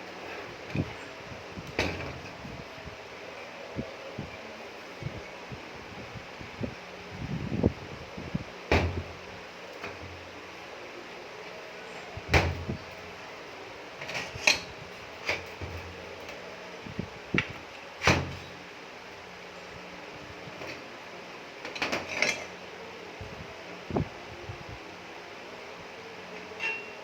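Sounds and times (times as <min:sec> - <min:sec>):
steady low hum: 0:00.0 - 0:26.4
metal parts knocking and clinking: 0:21.7 - 0:22.5.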